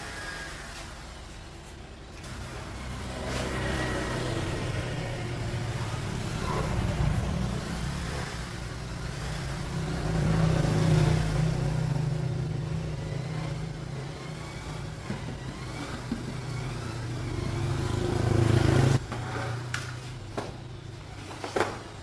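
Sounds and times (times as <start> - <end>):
engine running and revving: 2.3 - 20.1.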